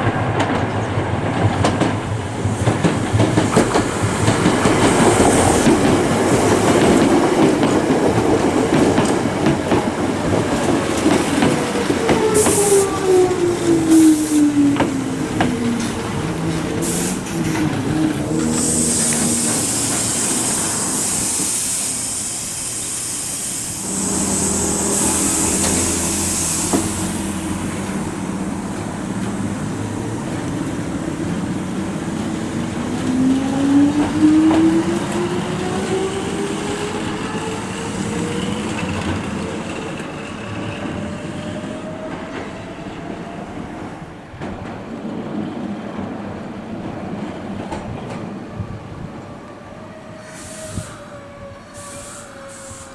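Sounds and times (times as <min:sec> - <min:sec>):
air hiss: 0:12.3 - 0:13.1, 0:13.8 - 0:14.7, 0:16.7 - 0:32.9, 0:50.2 - 0:52.9
electric train motor whine: 0:23.6 - 0:29.4.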